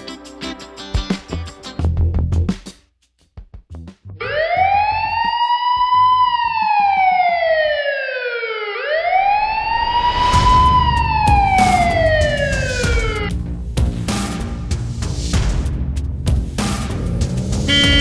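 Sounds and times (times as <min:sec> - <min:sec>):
police siren wailing: 0:04.3 - 0:13.2.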